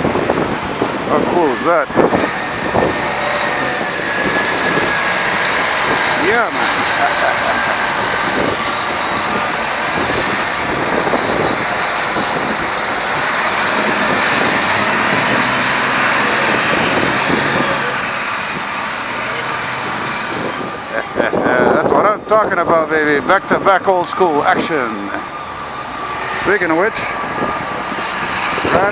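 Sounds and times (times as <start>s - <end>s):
bus engine and road noise: 0.0s - 28.9s.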